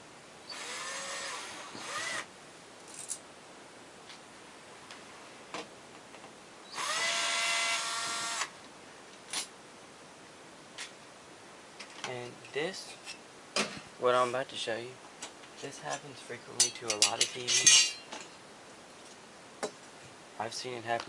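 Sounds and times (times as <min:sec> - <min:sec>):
electric screwdriver whining: 0:00.5 - 0:02.3, 0:06.7 - 0:08.5.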